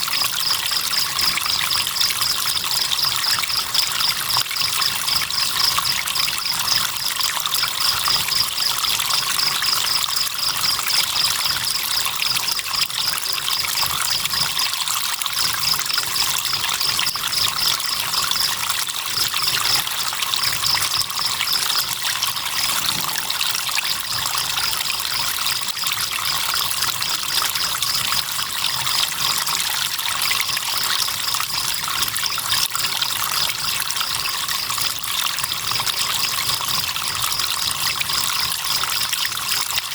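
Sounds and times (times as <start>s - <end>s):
river water trickling: 0.0s - 39.9s
crickets chirping: 0.1s - 14.8s, 15.7s - 31.4s.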